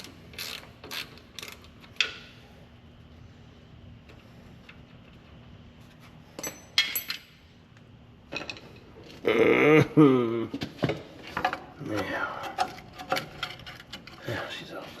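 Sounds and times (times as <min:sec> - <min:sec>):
faint steady hum: 0:00.0 - 0:15.0
metal parts clinking: 0:06.4 - 0:07.4.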